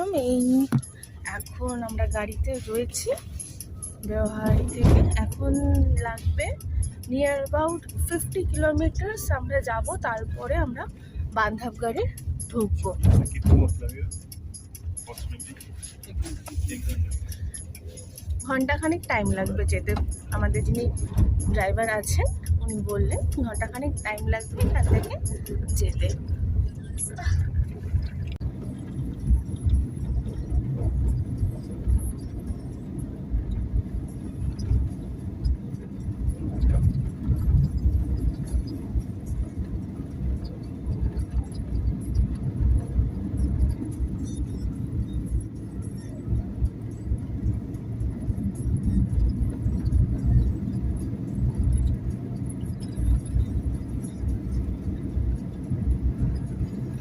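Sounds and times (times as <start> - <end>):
car driving heard from inside: 0.0 - 57.0.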